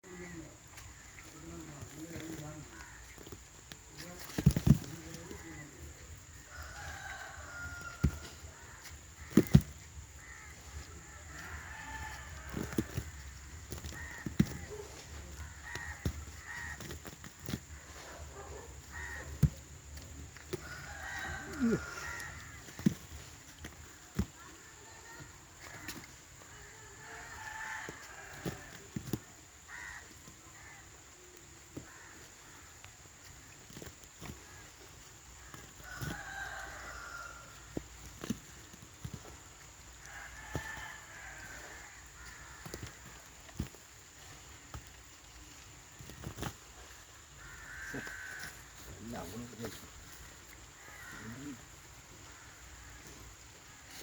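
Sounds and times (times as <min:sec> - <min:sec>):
crows cawing: 0:00.1 - 0:03.4, 0:04.0 - 0:44.8, 0:46.8 - 0:54.0
drawn-out bird calls: 0:04.9 - 0:38.0.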